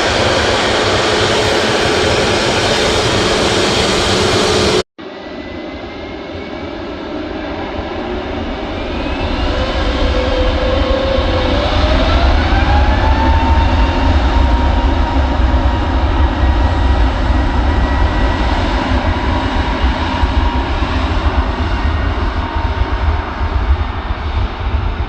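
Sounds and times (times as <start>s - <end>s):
jet engines running: 0.0s - 25.0s
jet engines spooling up: 0.0s - 25.0s.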